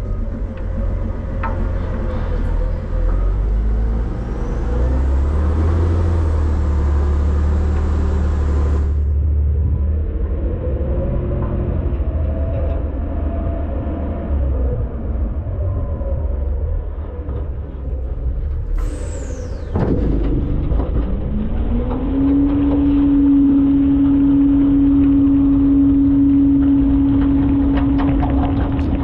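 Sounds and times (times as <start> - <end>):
garbage truck engine rumbling: 0.0 - 13.6.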